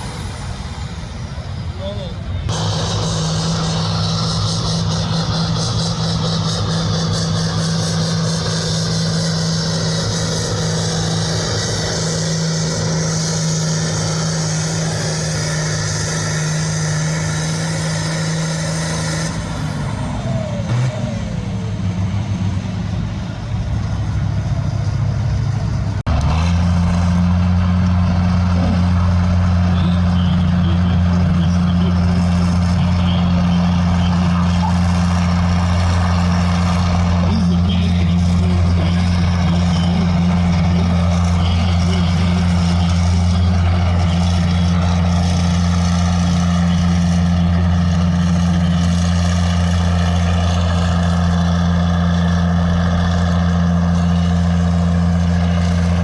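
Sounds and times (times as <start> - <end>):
heavy engine droning: 0.0 - 56.0.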